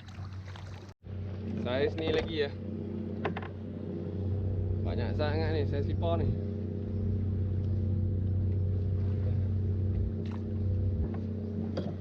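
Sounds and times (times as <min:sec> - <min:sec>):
motor humming: 0:01.1 - 0:12.0.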